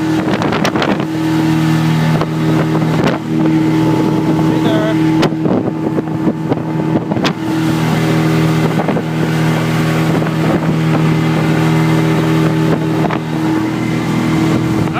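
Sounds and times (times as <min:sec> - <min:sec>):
outboard motor running: 0:00.0 - 0:14.9.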